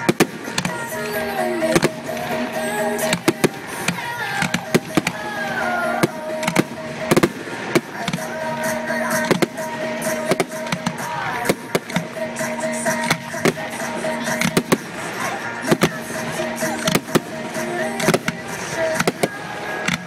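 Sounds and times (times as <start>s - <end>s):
fireworks bangs and crackles: 0.0s - 20.0s
pop music with singing: 0.0s - 20.0s.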